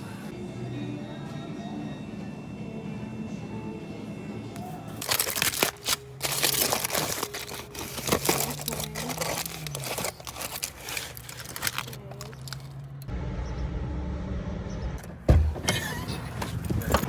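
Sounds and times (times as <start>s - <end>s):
packaging crinkling and rustling: 4.6s - 13.0s.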